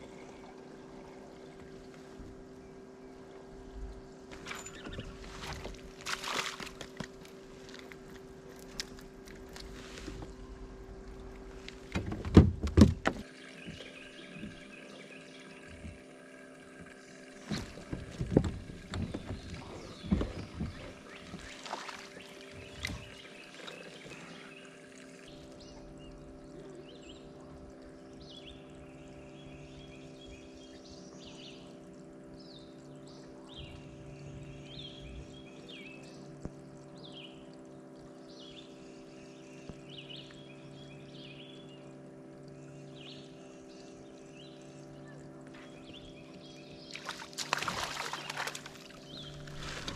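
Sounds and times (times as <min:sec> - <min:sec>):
steady hum: 0:00.0 - 0:49.9
knocks and clatter in boat: 0:03.7 - 0:15.0, 0:15.6 - 0:16.1, 0:16.8 - 0:24.3, 0:45.4 - 0:49.9.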